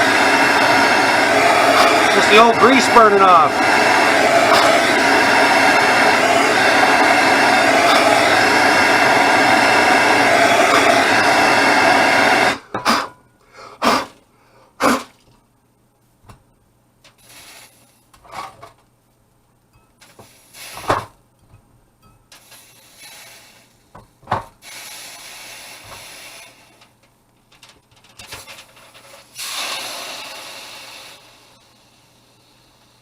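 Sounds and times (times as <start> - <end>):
heat gun blowing: 0.0 - 13.2, 17.1 - 18.0, 20.0 - 21.1, 22.4 - 23.8, 24.6 - 26.9, 28.3 - 33.0.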